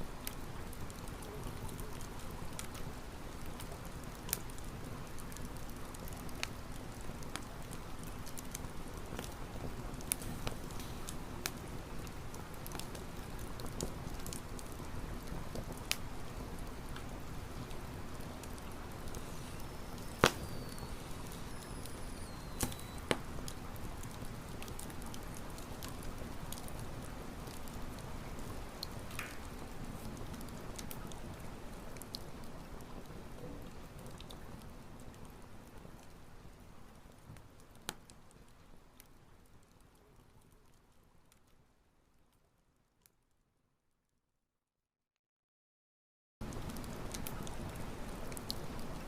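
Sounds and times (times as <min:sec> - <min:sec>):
campfire crackling and popping: 0:00.1 - 0:41.5, 0:46.4 - 0:49.0.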